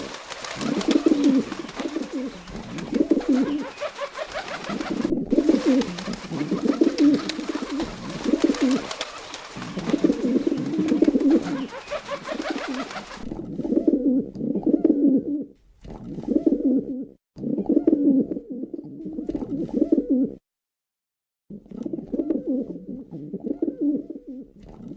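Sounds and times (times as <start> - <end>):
background hiss: 0.0 - 14.1
pigeons cooing: 0.0 - 15.6, 16.2 - 20.4, 21.8 - 24.9.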